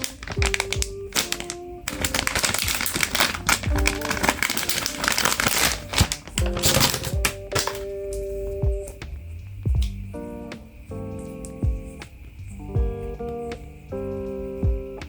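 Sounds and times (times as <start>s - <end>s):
packaging crinkling and tapping: 0.0s - 9.0s
background music with a beat: 0.1s - 15.0s.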